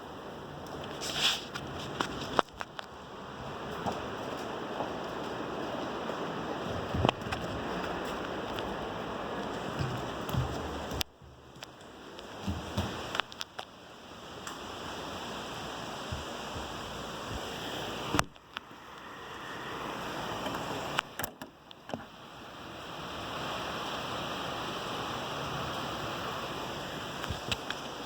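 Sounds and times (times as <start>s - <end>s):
heavy rain pouring: 0.4s - 18.3s, 22.2s - 28.0s.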